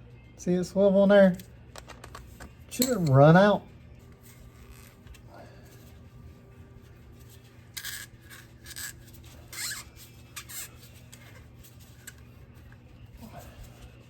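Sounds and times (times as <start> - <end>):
rubber hose scraping on fitting: 7.3 - 12.3
rubber squeak: 7.8 - 11.4.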